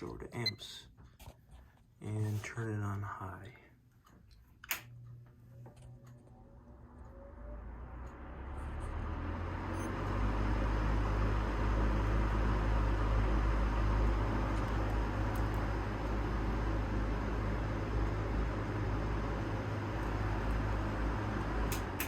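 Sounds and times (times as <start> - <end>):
fan rushing air: 4.8 - 22.0
low motor hum: 4.8 - 22.0.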